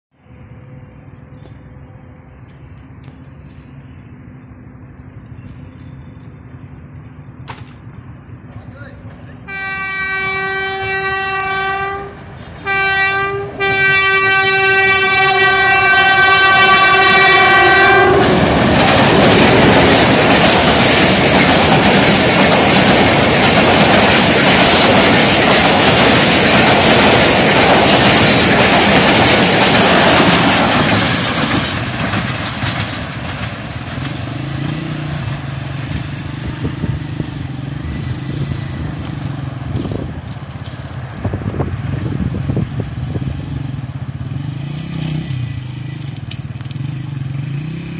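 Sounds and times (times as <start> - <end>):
train passing on rails: 0.1 - 47.9
diesel locomotive horn: 9.3 - 18.6.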